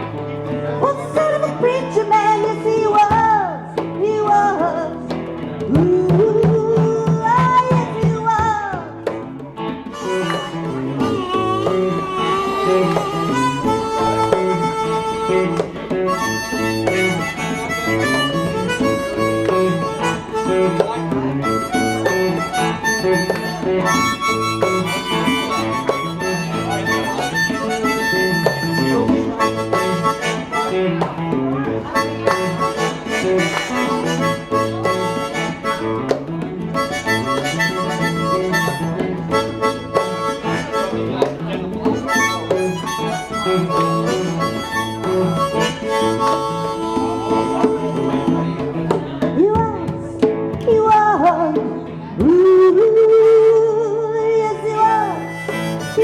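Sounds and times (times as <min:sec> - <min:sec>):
live band playing: 0:00.0 - 0:56.0
harmonica solo: 0:09.9 - 0:31.0, 0:31.9 - 0:41.2, 0:41.9 - 0:48.7, 0:54.9 - 0:56.0.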